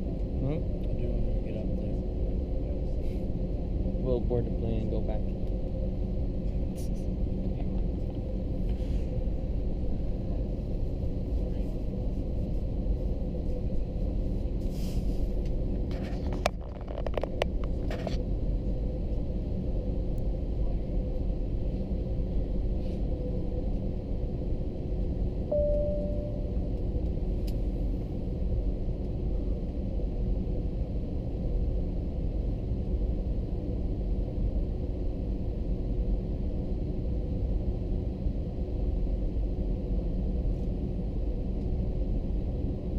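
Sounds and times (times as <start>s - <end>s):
airliner cabin engine hum: 0.0s - 42.9s
short faint tone: 25.5s - 26.6s.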